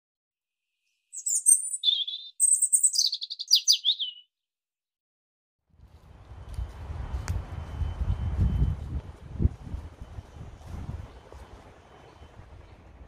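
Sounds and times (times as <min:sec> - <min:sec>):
songbird singing high notes: 0:01.1 - 0:04.3
low wind rumble: 0:05.8 - 0:13.0.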